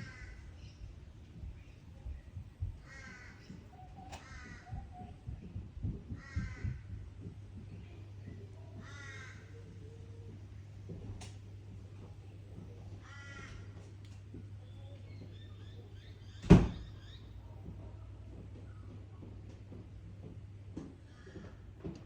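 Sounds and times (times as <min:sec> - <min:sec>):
crow cawing: 0:00.0 - 0:00.6, 0:02.8 - 0:04.9, 0:06.1 - 0:07.0, 0:08.7 - 0:09.8, 0:13.0 - 0:13.8
low wind rumble: 0:00.0 - 0:08.2.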